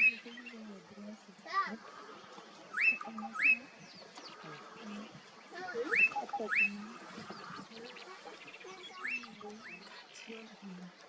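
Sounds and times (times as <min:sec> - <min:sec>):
faint bird chirps: 0:00.0 - 0:11.0
rising whistled bird calls: 0:02.6 - 0:05.1, 0:05.7 - 0:10.2.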